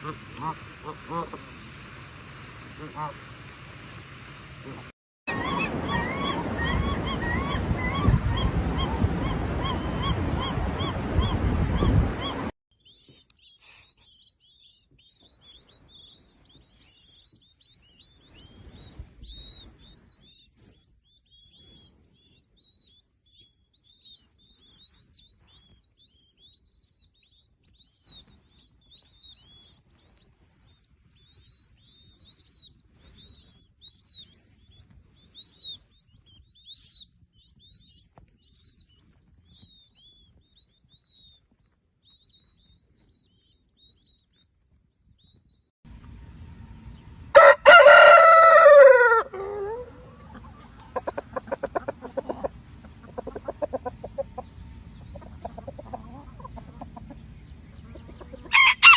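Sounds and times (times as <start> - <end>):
bird chirping: 12.2 - 48.2, 49.2 - 58.9.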